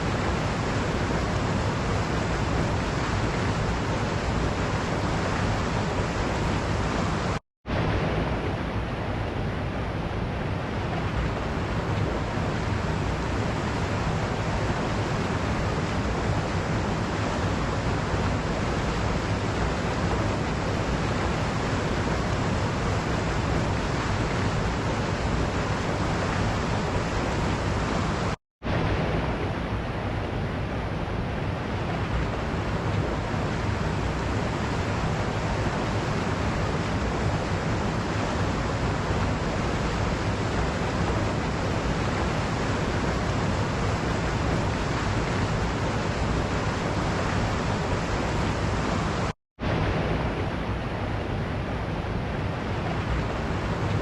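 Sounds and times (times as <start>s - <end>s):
waterfall rushing: 31.7s - 54.0s.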